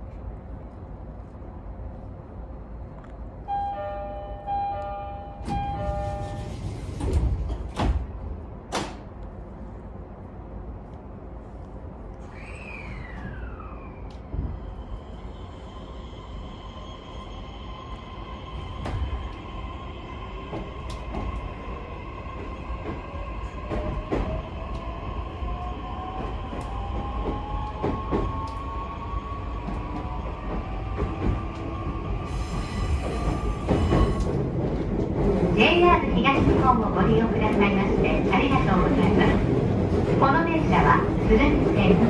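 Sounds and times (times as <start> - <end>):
train rumble: 0.0 - 42.0
rail-joint clicks: 4.8 - 9.3, 20.5 - 21.5, 32.4 - 34.8.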